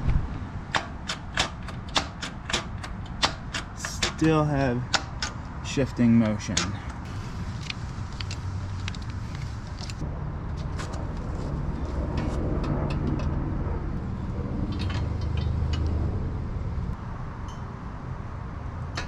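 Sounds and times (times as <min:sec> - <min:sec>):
hand tools clicking on metal parts: 0:00.7 - 0:05.4
low rumble: 0:07.0 - 0:17.0.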